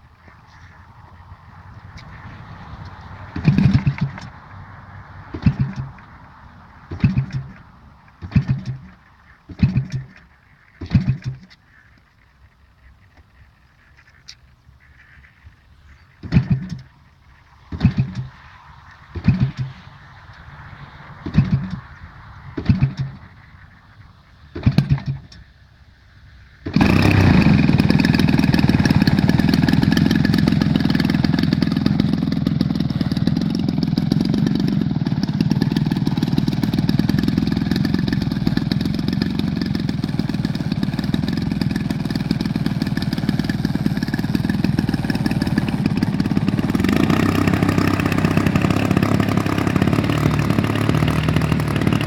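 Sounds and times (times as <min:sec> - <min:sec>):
model plane engine starting: 0:02.0 - 0:04.4, 0:05.3 - 0:06.2, 0:06.9 - 0:11.7, 0:16.2 - 0:20.4, 0:21.2 - 0:23.7, 0:24.6 - 0:25.5, 0:26.6 - 0:52.0.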